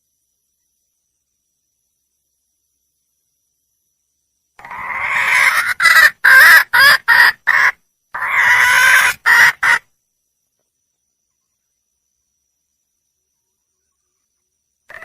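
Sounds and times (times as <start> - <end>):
hen clucking: 4.6 - 9.8
junglefowl hen calling: 4.6 - 9.9.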